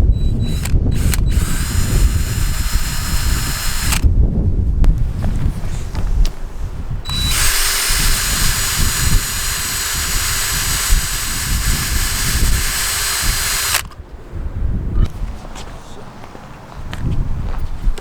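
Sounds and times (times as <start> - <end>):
electric drill running: 0.0 - 4.1, 7.1 - 14.0.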